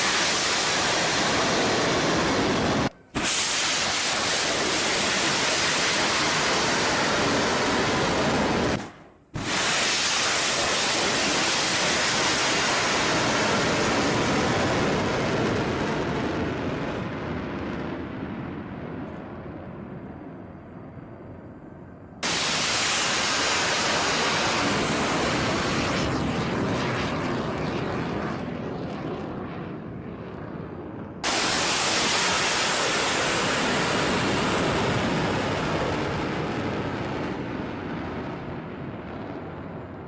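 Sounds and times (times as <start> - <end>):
missile rocket booster roar: 0.0 - 18.2, 22.2 - 39.4.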